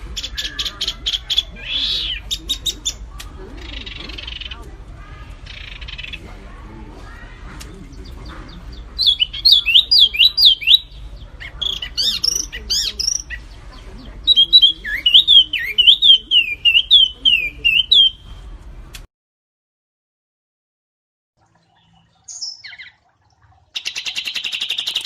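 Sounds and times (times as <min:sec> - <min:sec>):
bird chattering notes: 0:00.0 - 0:06.4, 0:07.0 - 0:18.4, 0:23.8 - 0:25.0
songbird whistling: 0:09.0 - 0:13.5, 0:14.2 - 0:18.4.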